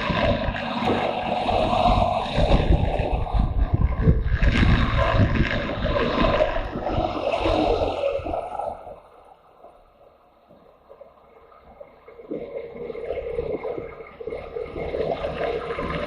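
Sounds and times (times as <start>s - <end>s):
wind rushing over microphone: 0.0s - 9.2s
motorcycle running: 0.0s - 10.0s, 12.4s - 16.0s.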